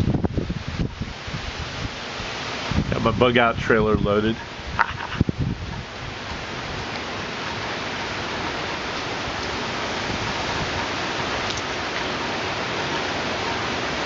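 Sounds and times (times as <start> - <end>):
wind and rain rushing: 0.0 - 14.0.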